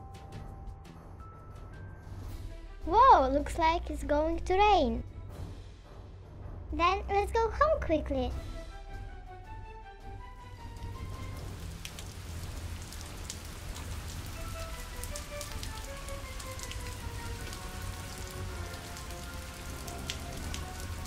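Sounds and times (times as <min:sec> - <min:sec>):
faint background music: 0:00.0 - 0:21.0
steady rain falling: 0:10.4 - 0:21.0.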